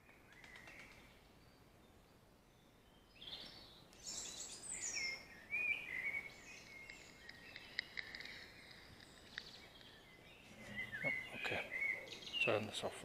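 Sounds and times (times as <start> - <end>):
songbirds singing: 0.0 - 13.0
faint clicks: 6.5 - 10.0.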